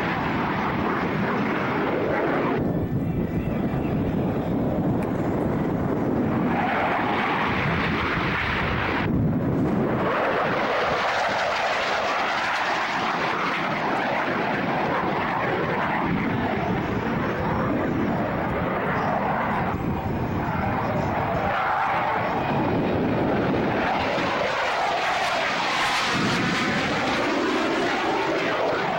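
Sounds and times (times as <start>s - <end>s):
airplane engine overhead: 0.0s - 28.9s.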